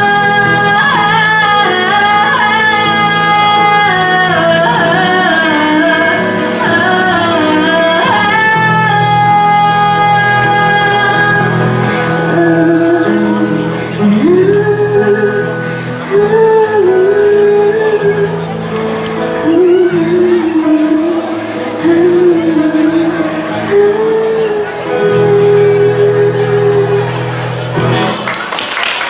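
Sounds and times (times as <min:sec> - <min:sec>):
woman singing live: 0:00.0 - 0:27.5
amplified pop backing music: 0:00.0 - 0:28.5.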